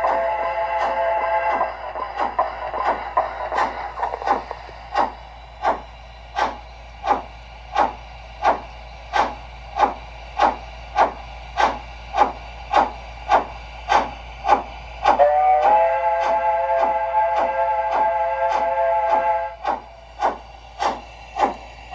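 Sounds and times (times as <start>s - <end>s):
multi-tone steam whistle: 0.0s - 3.0s, 14.5s - 19.9s
model steam locomotive chuffing: 0.0s - 21.9s.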